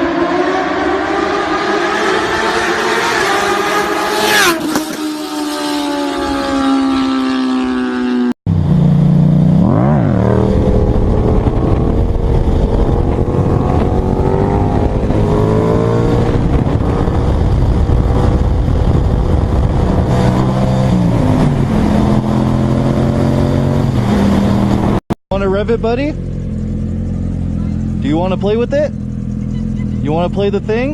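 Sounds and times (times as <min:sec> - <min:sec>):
motorcycle engine pitch falling: 0:00.0 - 0:30.9
motorcycle engine revving: 0:00.0 - 0:30.9.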